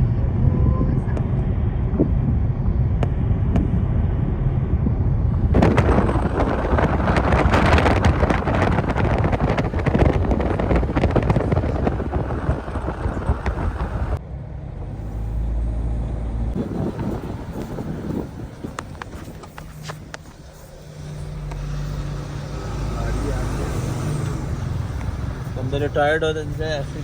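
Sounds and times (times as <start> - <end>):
low hum: 0.0 - 25.6
car rumbling on road: 0.0 - 27.0
loud crackling rush: 5.3 - 14.2.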